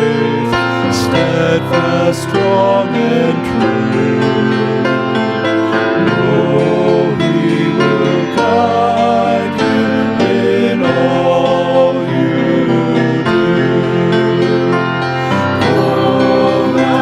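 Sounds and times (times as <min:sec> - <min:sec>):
keyboard chords: 0:00.0 - 0:17.0
slow hymn singing: 0:00.0 - 0:17.0.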